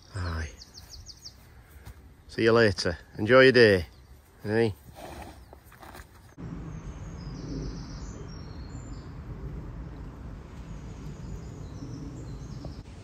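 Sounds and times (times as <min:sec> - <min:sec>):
small birds chirping: 0:00.0 - 0:13.0
low outdoor background rumble: 0:06.1 - 0:13.0.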